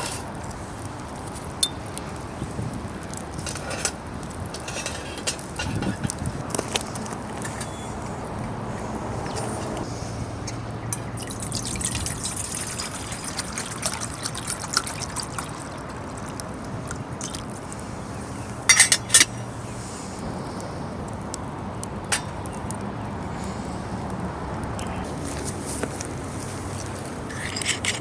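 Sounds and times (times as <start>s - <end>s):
water pouring and trickling: 0.0s - 19.6s, 24.7s - 28.0s.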